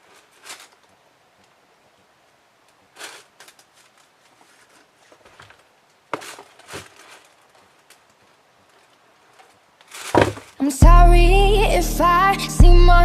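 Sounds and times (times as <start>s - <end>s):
sneakers rustling: 4.1s - 10.8s.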